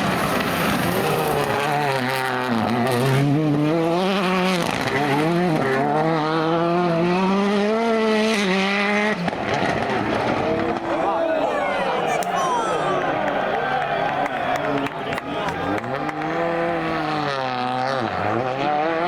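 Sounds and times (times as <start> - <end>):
rally car engine revving: 0.0 - 10.9, 15.5 - 19.0.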